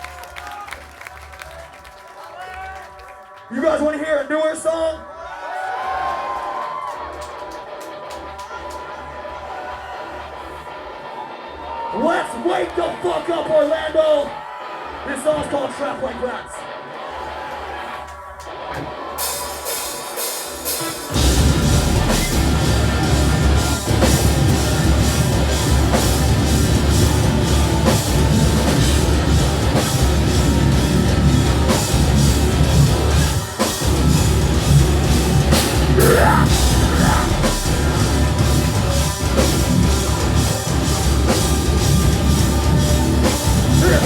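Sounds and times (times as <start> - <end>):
metal band playing live: 18.5 - 44.0.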